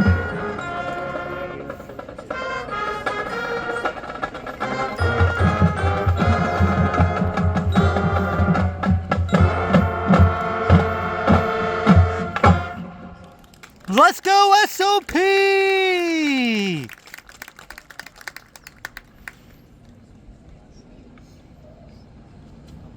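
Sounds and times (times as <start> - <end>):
marching band playing: 2.4 - 12.9, 13.9 - 16.9.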